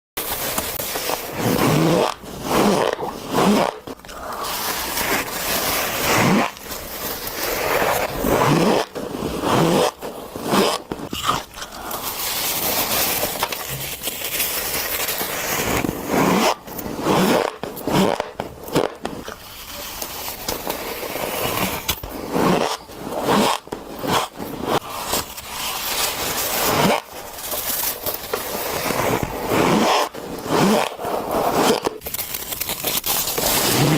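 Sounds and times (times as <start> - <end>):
crunchy chewing of shaved ice: 11.1 - 12.1.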